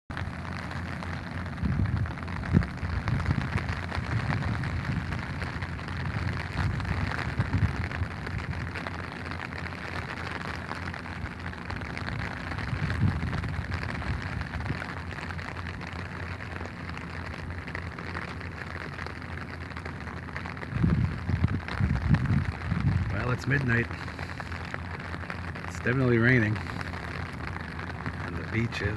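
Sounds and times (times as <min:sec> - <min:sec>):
rain pattering: 0:00.1 - 0:28.9
low thumps and bumps: 0:12.4 - 0:25.9.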